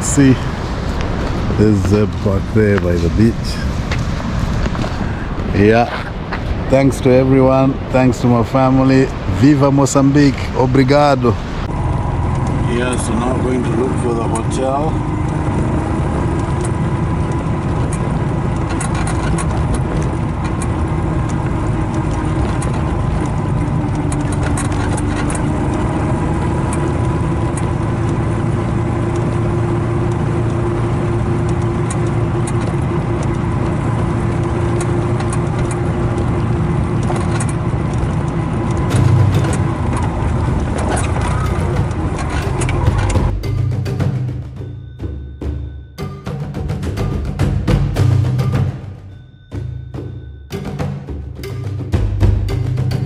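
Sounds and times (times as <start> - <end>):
road and wind noise: 0.0 - 53.0
small engine running: 11.7 - 43.4.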